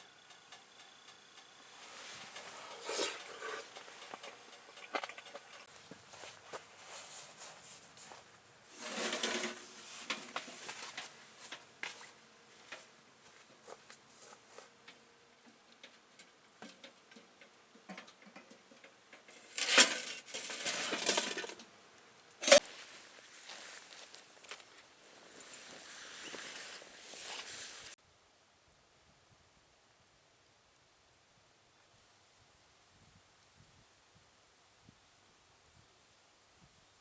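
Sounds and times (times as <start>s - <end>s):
objects rustling and clattering: 1.7s - 21.7s, 22.4s - 28.0s.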